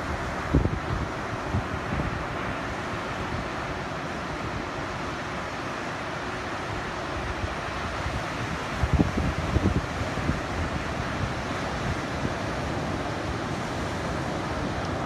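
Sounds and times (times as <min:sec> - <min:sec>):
surf washing: 0:00.0 - 0:15.0
wind buffeting microphone: 0:00.1 - 0:02.2, 0:08.1 - 0:15.0.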